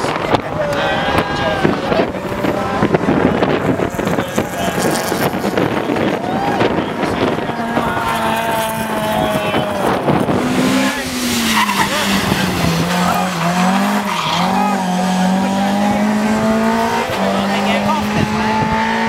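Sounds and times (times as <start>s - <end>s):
race car engine revving: 0.0s - 19.0s
tyres squealing and skidding: 7.6s - 16.2s.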